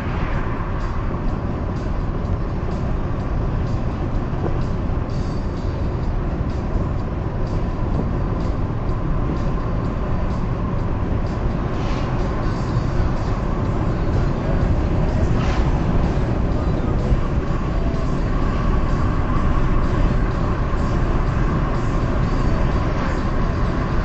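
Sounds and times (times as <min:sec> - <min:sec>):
car tyres and engine rumble: 0:00.0 - 0:24.0.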